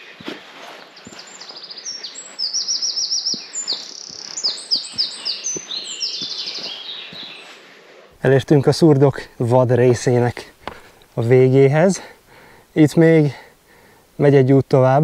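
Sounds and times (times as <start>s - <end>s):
songbirds trilling and chirping: 0.0s - 8.8s.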